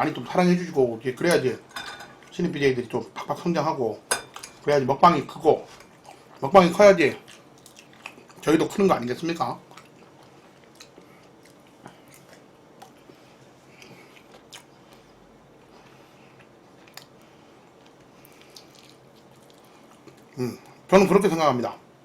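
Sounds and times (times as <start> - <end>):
person chewing food: 5.7 - 6.4, 7.1 - 8.5, 9.6 - 20.8.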